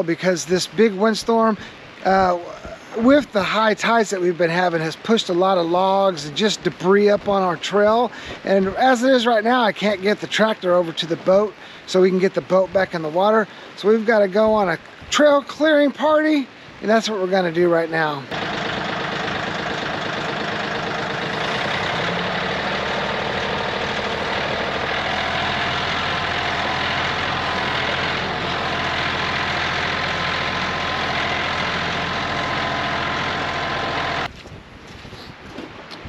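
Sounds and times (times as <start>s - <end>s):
tractor engine running: 18.3s - 34.3s.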